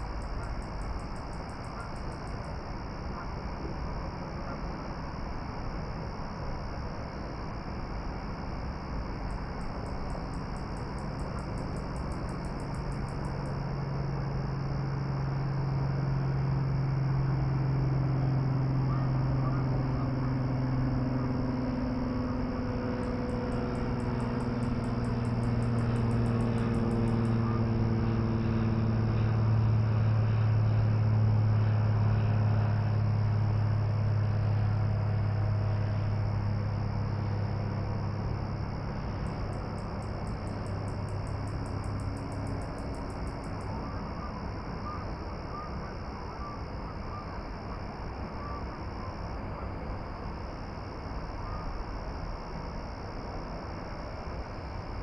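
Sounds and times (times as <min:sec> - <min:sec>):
distant engine droning: 0:00.0 - 0:55.0
rapid high-pitched ticking: 0:09.3 - 0:13.6.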